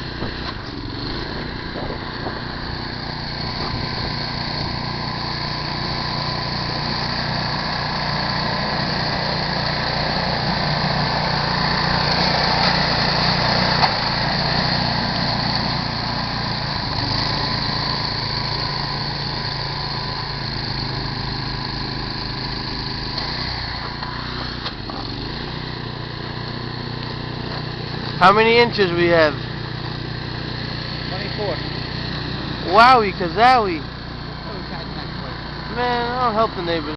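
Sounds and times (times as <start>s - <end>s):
small gasoline engine running: 0.0s - 36.9s.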